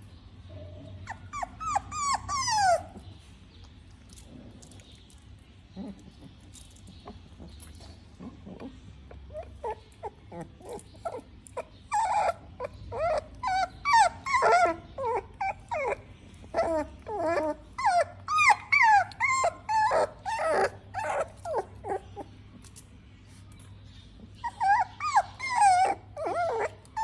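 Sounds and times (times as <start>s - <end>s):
puppy whimpering and yelping: 0.6s - 3.2s, 7.0s - 22.4s, 24.2s - 27.0s.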